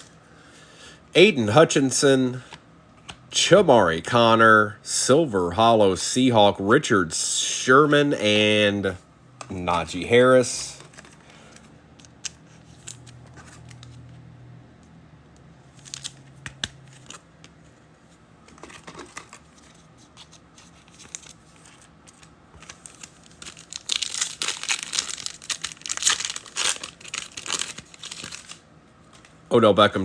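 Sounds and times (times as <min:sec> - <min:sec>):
foil wrapper tearing and crinkling: 0:20.4 - 0:28.6.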